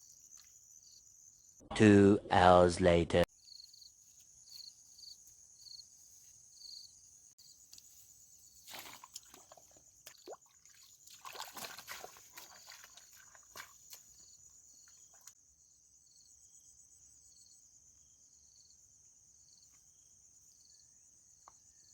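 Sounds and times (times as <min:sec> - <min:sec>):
insects chirping: 0:00.0 - 0:01.6, 0:03.3 - 0:21.9
rustling or sloshing: 0:07.8 - 0:14.2.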